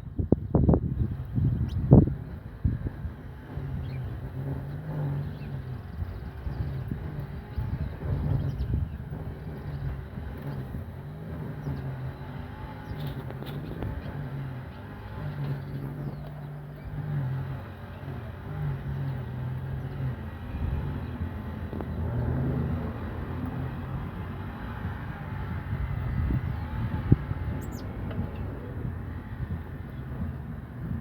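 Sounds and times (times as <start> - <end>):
distant traffic rumble: 0.0 - 31.0
finch chirps: 27.6 - 27.9.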